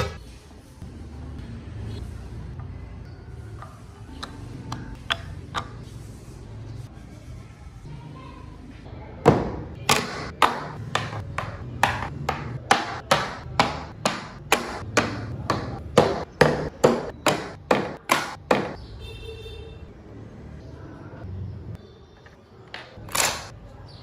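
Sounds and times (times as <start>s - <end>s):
mallet striking chisel into wood: 9.3s - 18.8s.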